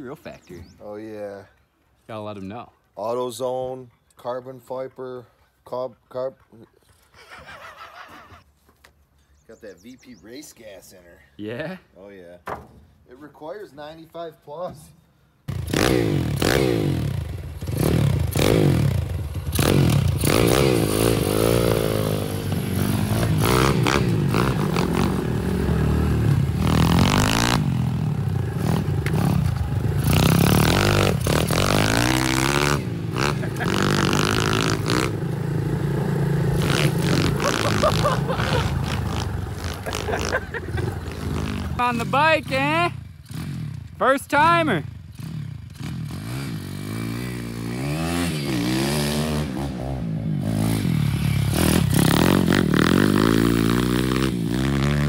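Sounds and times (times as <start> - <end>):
motorbike engine revving: 15.5 - 55.0.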